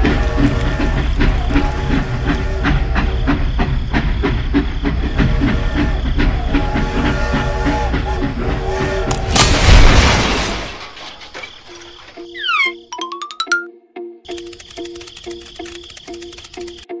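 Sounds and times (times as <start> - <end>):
rhythmic mechanical chugging: 0.0 - 9.6, 14.3 - 17.0
loud boom-like burst: 9.4 - 10.9.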